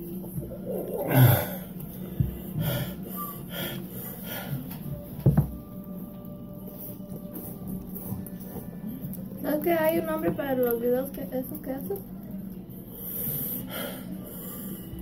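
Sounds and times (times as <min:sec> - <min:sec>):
person wheezing and gasping: 0:00.8 - 0:01.7.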